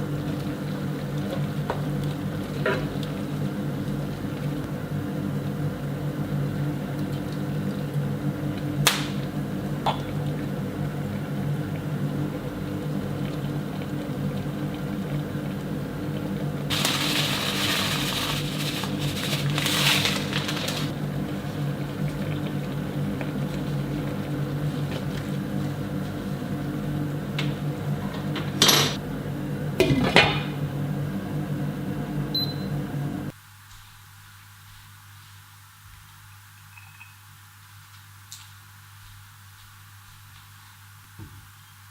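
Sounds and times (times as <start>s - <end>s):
kitchen appliance humming: 0.0s - 33.3s.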